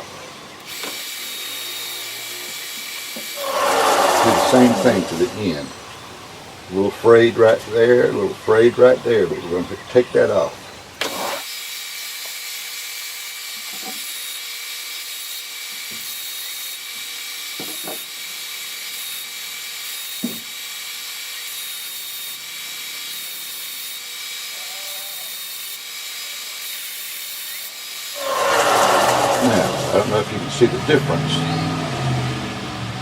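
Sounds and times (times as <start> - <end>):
power sander sanding wood: 2.8 - 5.8, 27.8 - 31.1.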